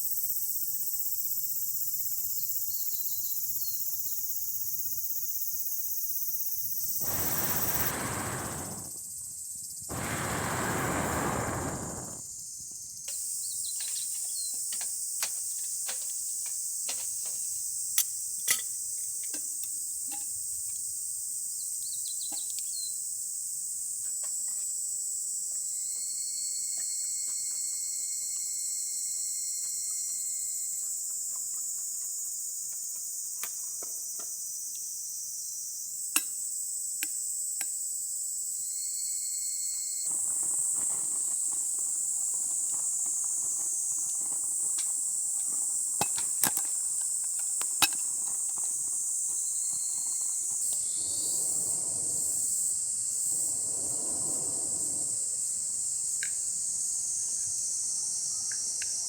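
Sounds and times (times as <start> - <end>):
chorus of insects: 7.0 - 9.0, 9.9 - 12.2, 38.7 - 59.0.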